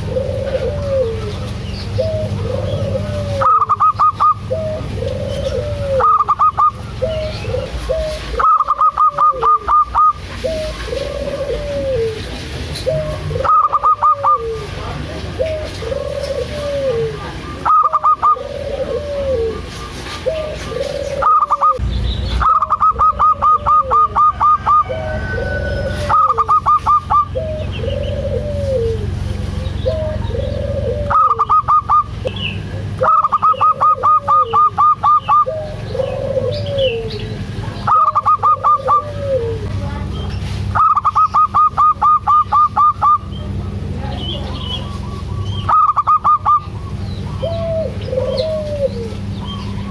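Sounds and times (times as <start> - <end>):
doves cooing: 0.0 - 49.9
fast repeated high bird notes: 21.2 - 24.8.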